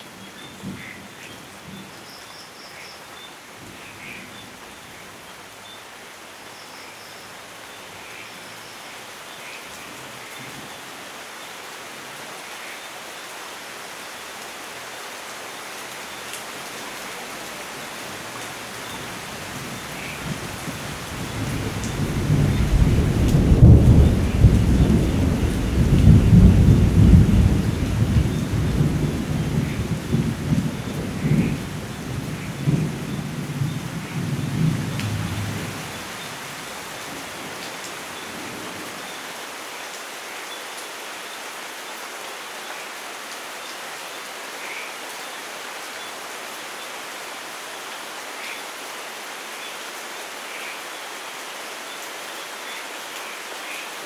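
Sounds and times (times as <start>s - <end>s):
rain hissing: 12.6s - 40.1s
deep thunder rumble: 20.3s - 36.1s.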